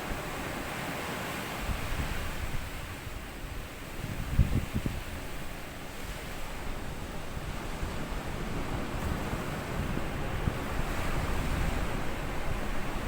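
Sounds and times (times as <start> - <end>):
small waves washing on sand: 0.0 - 13.0.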